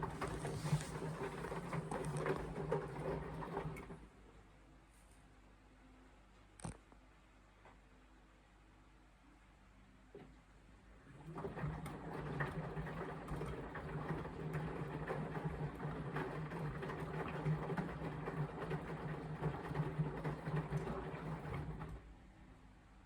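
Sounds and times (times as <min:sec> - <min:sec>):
washing machine motor hum: 0:00.0 - 0:04.1, 0:11.0 - 0:22.3
washing machine drum clatter: 0:11.2 - 0:22.0.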